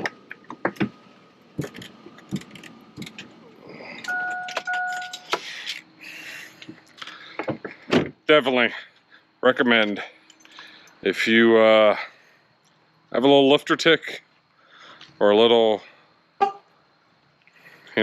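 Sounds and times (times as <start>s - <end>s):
vehicle two-tone warning chime: 4.0s - 5.3s
keys jangling: 4.0s - 5.8s.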